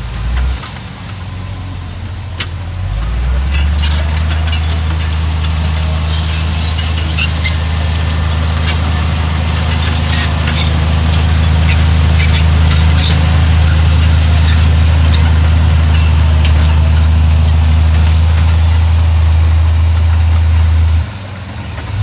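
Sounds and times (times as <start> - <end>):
heavy diesel engine running: 0.0 - 22.0
clanks and rattles: 3.2 - 18.7.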